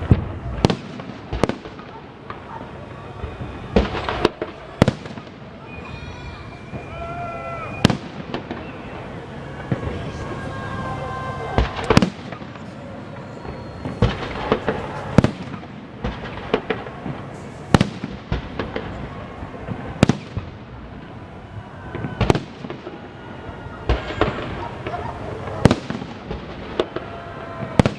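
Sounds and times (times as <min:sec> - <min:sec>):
firework crackles: 0:00.0 - 0:27.9
firework shells bursting: 0:11.6 - 0:20.6.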